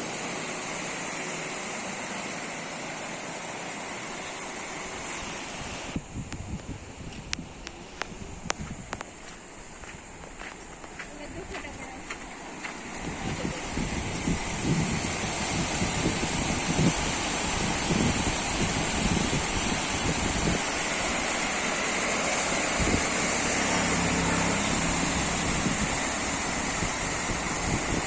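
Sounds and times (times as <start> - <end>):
wind buffeting microphone: 5.9 - 21.8, 22.5 - 23.6, 24.4 - 28.0
vehicle engine passing: 20.9 - 27.6.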